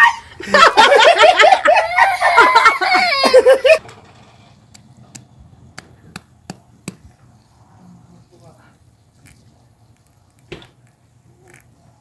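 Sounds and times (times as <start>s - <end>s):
loud laughter: 0.0s - 3.8s.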